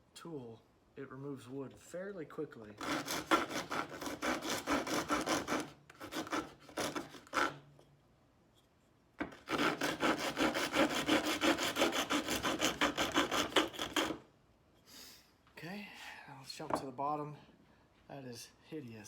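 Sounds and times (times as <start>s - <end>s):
wood rasp scraping wood: 2.8s - 7.6s, 9.2s - 14.2s.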